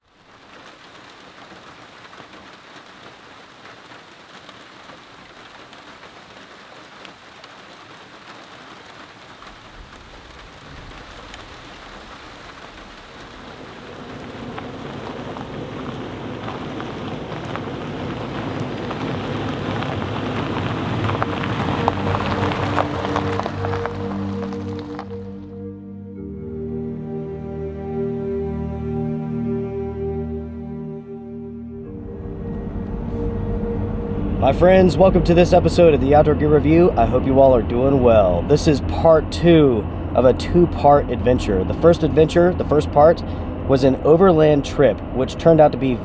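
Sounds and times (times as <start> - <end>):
rain pattering: 0.0 - 25.6, 32.0 - 46.0
low thunder rumble: 9.7 - 25.5, 31.9 - 45.6
music drone: 20.6 - 44.2.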